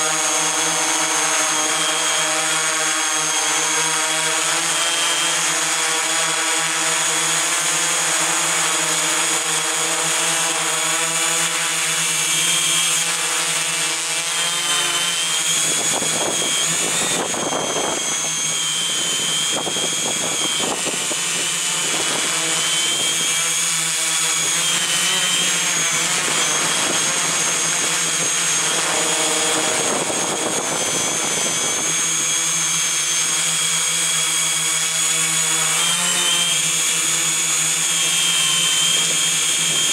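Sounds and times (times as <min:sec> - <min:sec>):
electric motors whining: 0:00.0 - 0:39.9
wind rushing over microphone: 0:15.3 - 0:32.7.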